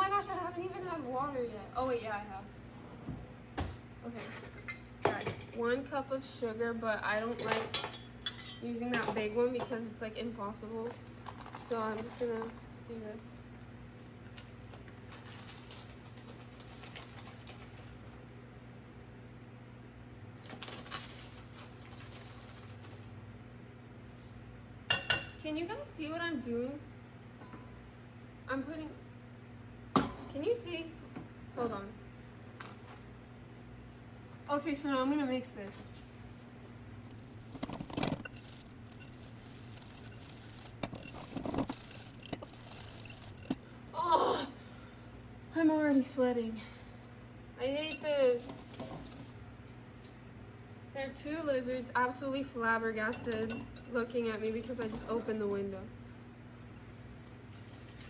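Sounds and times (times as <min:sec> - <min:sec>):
steady low hum: 0:00.0 - 0:58.0
utensil scraping a mixing bowl: 0:37.2 - 0:43.6.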